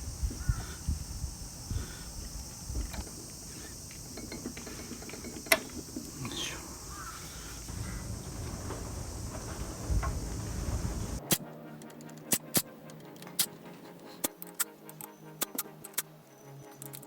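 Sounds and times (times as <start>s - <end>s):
low knocks: 0.0s - 11.2s
crows cawing: 0.2s - 3.9s, 4.6s - 11.2s.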